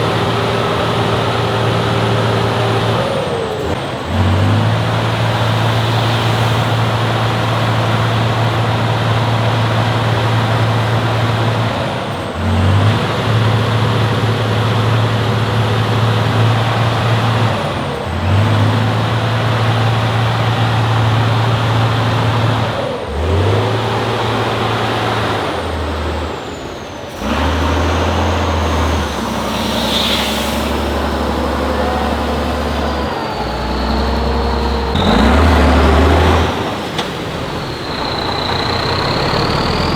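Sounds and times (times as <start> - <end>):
diesel truck engine under load: 0.0 - 39.9
short hiss: 29.1 - 31.6.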